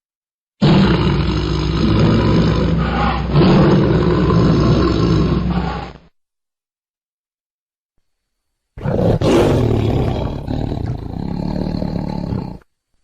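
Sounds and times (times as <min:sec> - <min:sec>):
big cat roaring: 0:00.6 - 0:06.1, 0:08.8 - 0:12.7.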